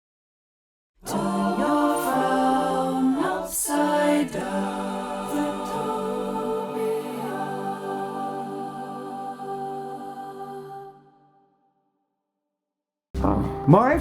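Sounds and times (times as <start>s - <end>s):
voices singing a jingle: 1.0s - 11.3s.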